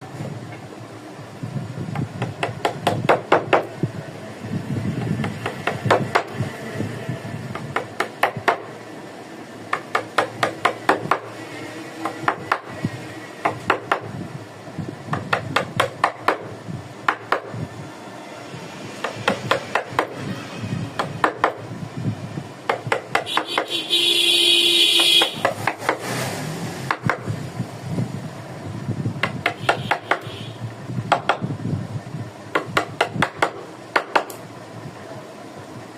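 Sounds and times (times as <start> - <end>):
loud steady whine: 0.0 - 25.6
mallet tapping chisel: 2.0 - 3.7, 9.7 - 11.3, 19.0 - 20.1, 21.0 - 21.6, 22.7 - 23.7, 25.0 - 26.0, 29.2 - 30.2, 31.1 - 31.4, 32.5 - 34.4.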